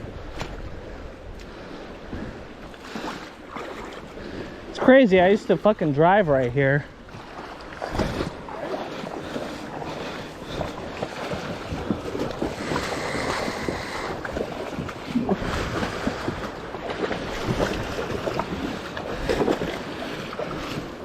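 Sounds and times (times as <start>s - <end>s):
water churning and splashing: 0.0s - 21.0s
wind buffeting microphone: 6.6s - 21.0s.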